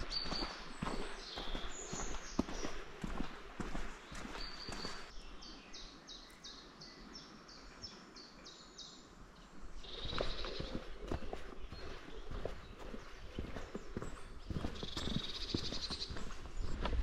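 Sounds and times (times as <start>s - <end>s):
footsteps on dirt path: 0.0s - 5.2s, 9.5s - 17.0s.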